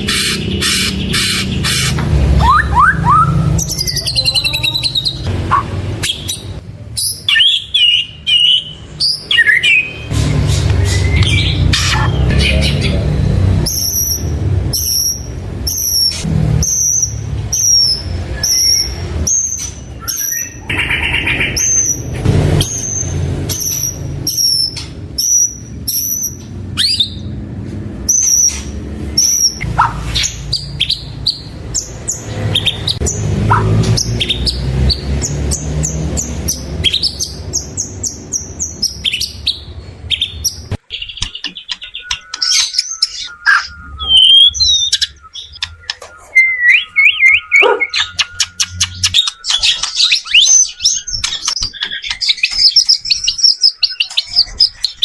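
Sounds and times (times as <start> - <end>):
songbird singing whistled phrases: 2.4 - 5.3, 6.0 - 10.1, 13.6 - 27.3, 36.2 - 55.0.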